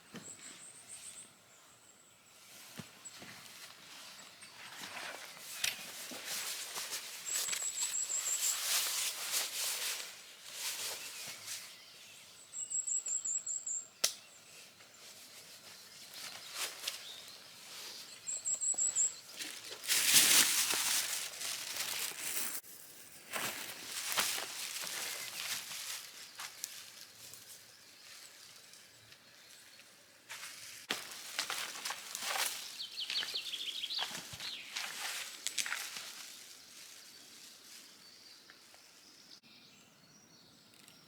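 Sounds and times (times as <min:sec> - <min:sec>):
rustling and crackling: 0:15.1 - 0:28.8.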